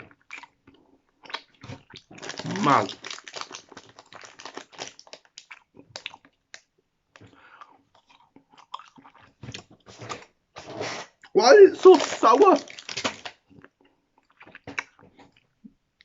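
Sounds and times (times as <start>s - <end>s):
person chewing sweets: 0.0s - 16.0s
mouth clicks and smacks: 4.8s - 9.4s.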